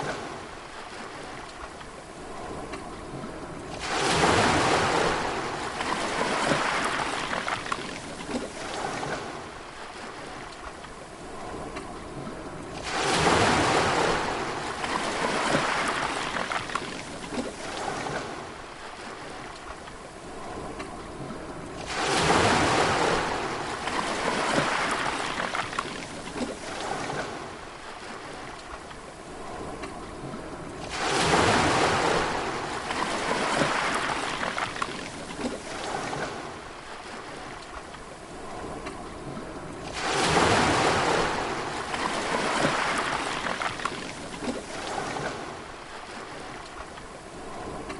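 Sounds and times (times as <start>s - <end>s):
sea waves breaking on shore: 0.0s - 47.9s.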